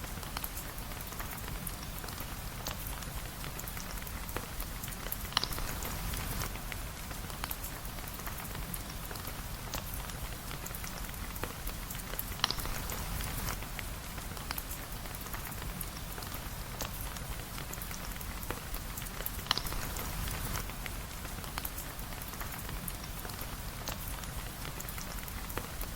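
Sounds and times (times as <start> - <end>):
rain falling: 0.0 - 25.9
light clicks and sharp pops: 10.6 - 15.7, 17.6 - 25.8.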